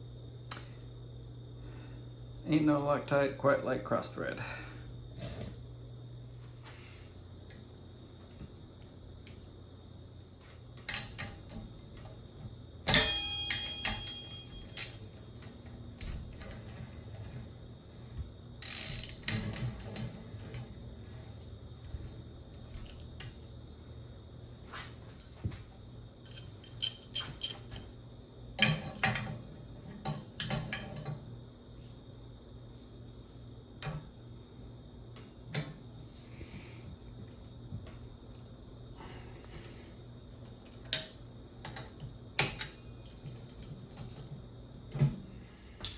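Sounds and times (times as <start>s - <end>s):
ringing metal clank: 12.9s - 15.0s.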